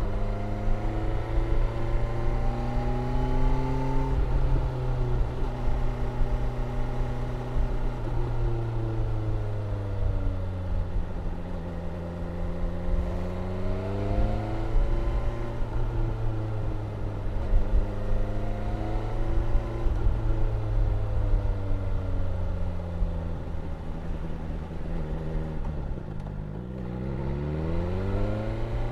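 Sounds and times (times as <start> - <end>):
motorcycle engine running: 19.3 - 28.9.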